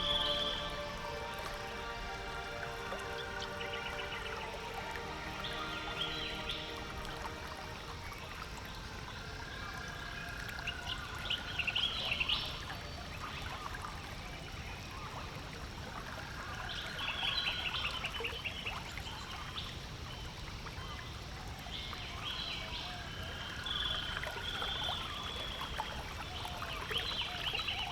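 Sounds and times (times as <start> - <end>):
songbird whistle and trill: 0.0 - 8.2
steady water noise: 0.0 - 27.9.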